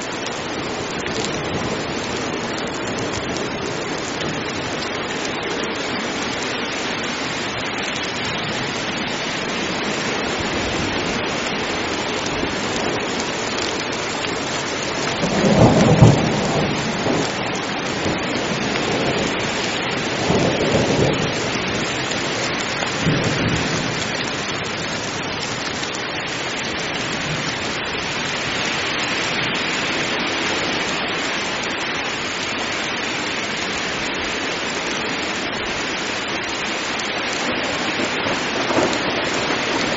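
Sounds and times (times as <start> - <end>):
heavy rain falling: 0.0 - 39.9
thunder rumble: 15.0 - 25.7, 37.4 - 39.9.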